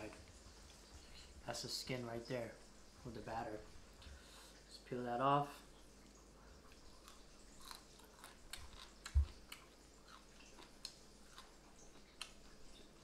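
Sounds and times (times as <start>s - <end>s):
person chewing fried fish: 6.6s - 13.0s.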